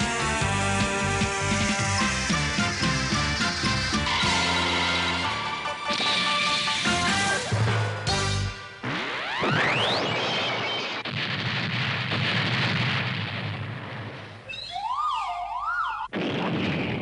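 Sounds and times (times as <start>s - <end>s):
explosion rumble: 8.8s - 14.5s, 16.1s - 17.0s
cartoon rising whistle: 14.5s - 16.1s
warbling electronic siren tone: 14.5s - 16.1s.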